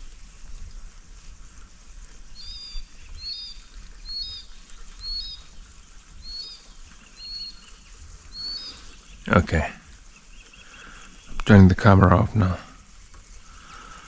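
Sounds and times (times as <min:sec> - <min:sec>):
bird chirping: 0:02.3 - 0:12.7.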